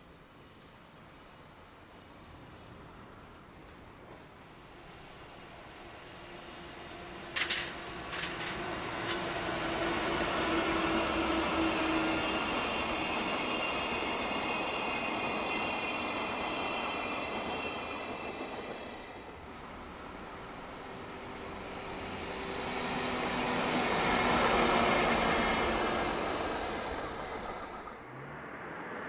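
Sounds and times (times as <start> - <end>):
freight train rolling past: 0.3 - 28.6.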